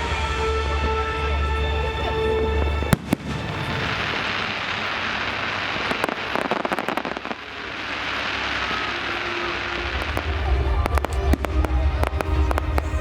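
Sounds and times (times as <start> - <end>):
film score music: 0.0 - 6.0, 8.3 - 13.0
fireworks crackling: 0.0 - 13.0
firework bang: 2.0 - 8.6.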